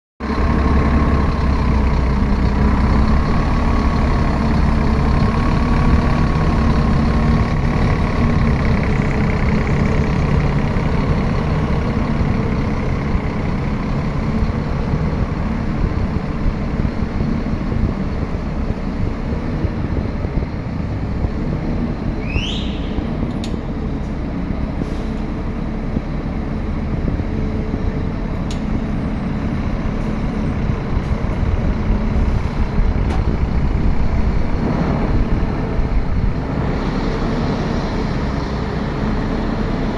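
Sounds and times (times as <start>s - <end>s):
bus diesel engine humming: 0.2s - 39.9s
short high rising chirp: 22.2s - 23.2s.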